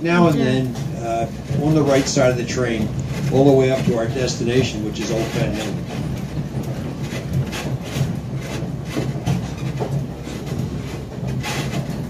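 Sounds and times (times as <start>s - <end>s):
train rumble from on board: 0.0s - 12.0s
wheels clacking on rails: 0.0s - 12.0s.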